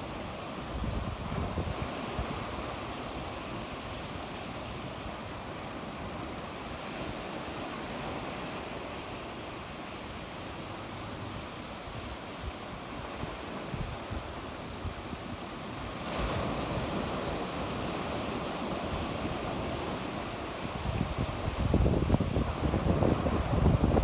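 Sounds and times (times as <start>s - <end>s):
sea waves breaking on shore: 0.0s - 24.0s
wind on microphone: 0.2s - 5.2s, 11.9s - 24.0s.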